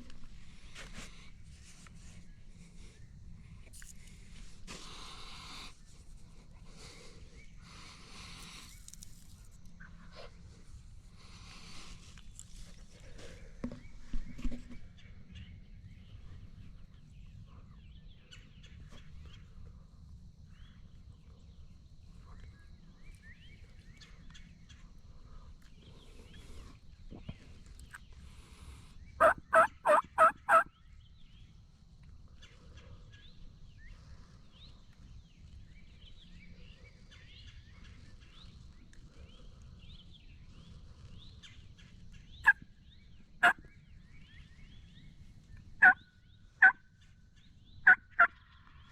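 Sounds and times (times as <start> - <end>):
turkey yelps: 29.2 - 30.7.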